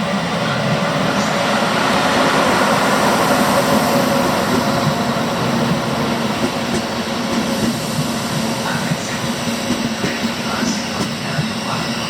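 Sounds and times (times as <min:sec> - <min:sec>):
electric train rumble and hum: 0:00.0 - 0:12.0.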